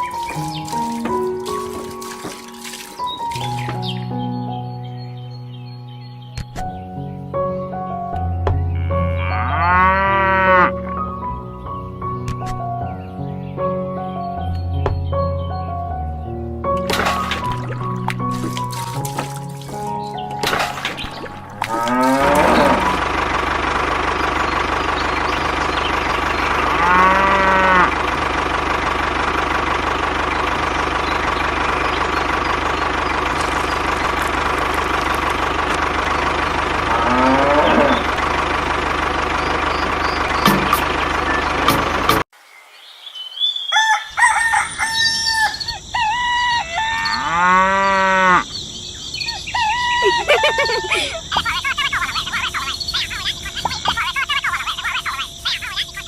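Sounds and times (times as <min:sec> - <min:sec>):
cows mooing: 0:08.7 - 0:10.9, 0:21.4 - 0:23.1, 0:26.4 - 0:28.0, 0:36.6 - 0:38.2, 0:46.6 - 0:48.5
steady background hum: 0:48.4 - 0:56.0
chickens clucking: 0:49.3 - 0:56.0.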